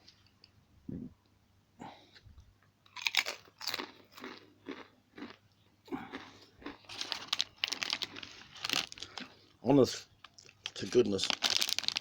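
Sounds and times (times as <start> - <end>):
person chewing crisp potato chips: 2.8 - 9.5, 10.3 - 12.0.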